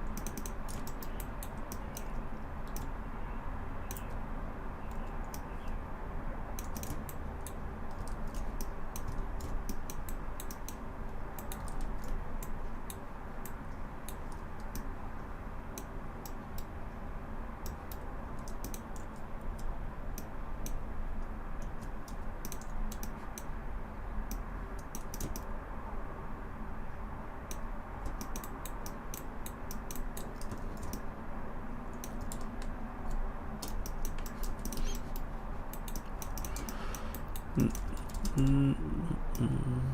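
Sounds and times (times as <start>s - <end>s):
computer keyboard keystrokes: 0.0s - 2.9s, 6.6s - 10.8s, 11.4s - 14.9s, 17.6s - 20.8s, 21.6s - 23.5s, 24.8s - 25.5s, 27.5s - 31.1s, 31.9s - 38.4s
steady low hum: 0.0s - 39.9s.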